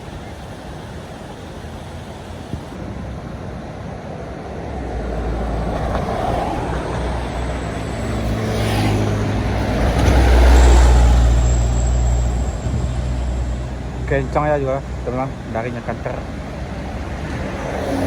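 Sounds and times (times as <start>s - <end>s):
heavy vehicle engine drone: 0.0s - 18.0s
road noise: 0.0s - 18.0s.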